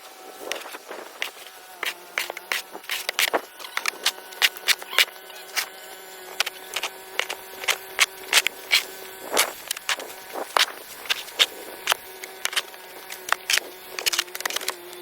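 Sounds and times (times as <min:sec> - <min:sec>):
sharp clicks and knocks: 0:06.3 - 0:15.0.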